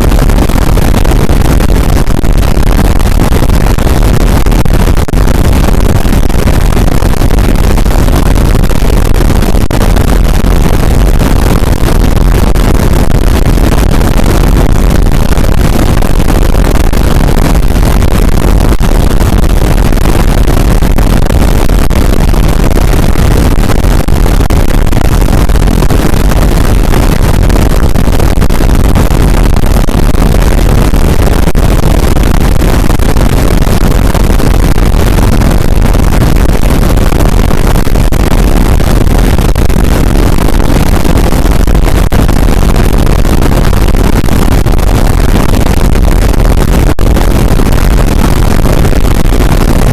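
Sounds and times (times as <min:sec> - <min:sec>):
harsh distorted noise music: 0:00.0 - 0:49.9.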